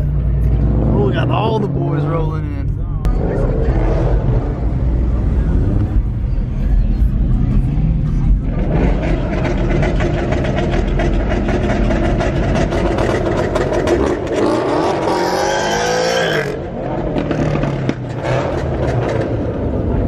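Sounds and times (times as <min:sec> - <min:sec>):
car engines running rough: 0:00.0 - 0:20.0
car engine revving hard: 0:08.5 - 0:19.5.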